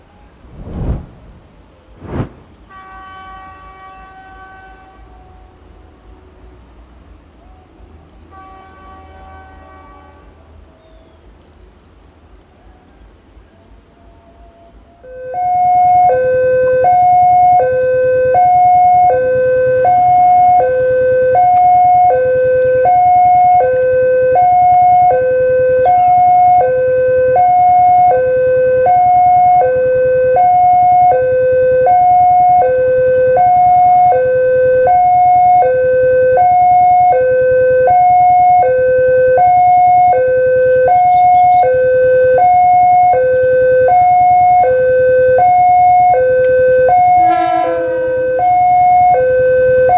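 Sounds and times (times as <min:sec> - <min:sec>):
level crossing two-tone alarm: 0:25.9 - 0:49.9.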